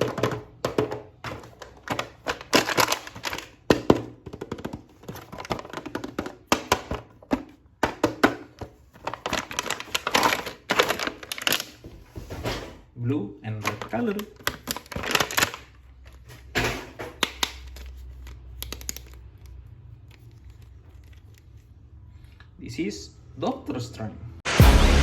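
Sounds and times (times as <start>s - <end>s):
plastic packaging crinkles and clicks: 0.0s - 12.0s, 13.6s - 22.5s.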